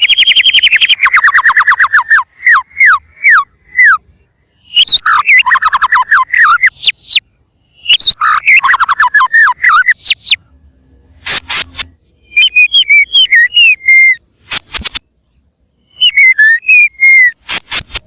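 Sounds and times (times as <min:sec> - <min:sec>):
bird singing whistled notes: 0:00.0 - 0:14.3, 0:15.0 - 0:17.4
bird chattering notes: 0:04.6 - 0:10.4, 0:11.2 - 0:14.8, 0:15.8 - 0:17.8.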